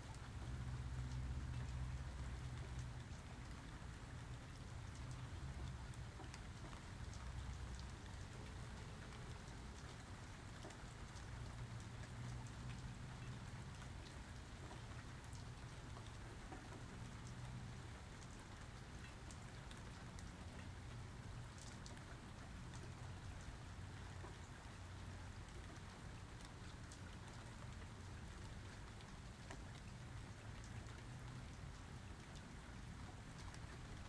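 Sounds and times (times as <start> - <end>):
rain pattering: 0.0 - 34.0.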